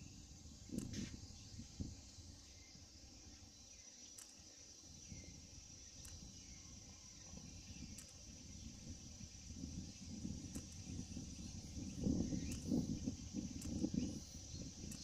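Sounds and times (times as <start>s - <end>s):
insects trilling: 0.0s - 15.0s
faint ticks: 0.7s - 1.2s, 4.0s - 4.6s, 5.8s - 6.5s, 7.8s - 8.3s, 10.4s - 11.0s, 12.3s - 14.2s, 14.8s - 15.0s
low wind rumble: 4.8s - 15.0s.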